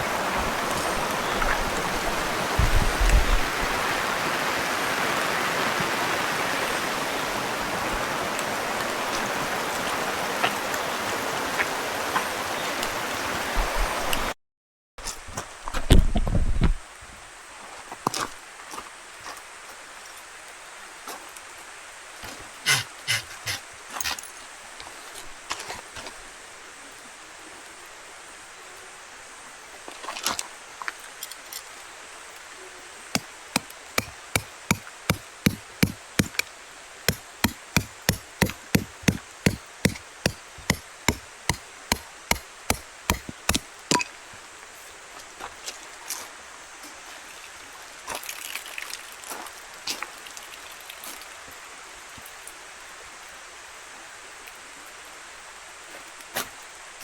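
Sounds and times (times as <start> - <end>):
sharp knocking: 22.7 - 23.6, 33.6 - 36.4, 37.1 - 44.0.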